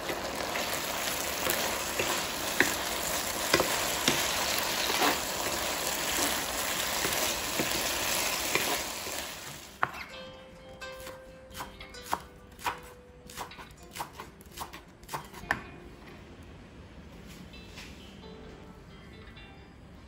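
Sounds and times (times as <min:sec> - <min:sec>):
food sizzling in a wok: 0:00.0 - 0:09.9
wooden spatula scraping and knocking: 0:01.4 - 0:08.9.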